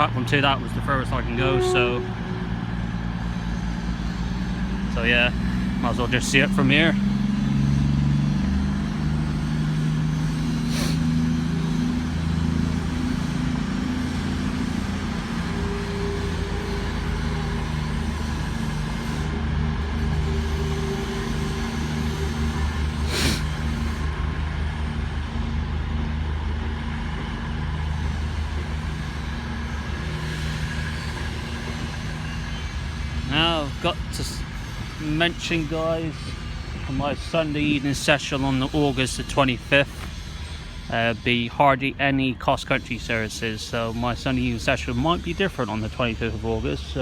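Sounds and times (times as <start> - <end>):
diesel train engines droning: 0.0 - 47.0.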